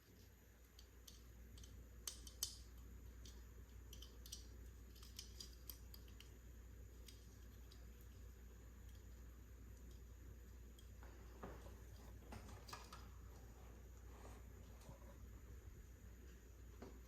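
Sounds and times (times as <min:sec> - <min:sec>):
plastic toy pieces clicking: 0:00.8 - 0:06.3.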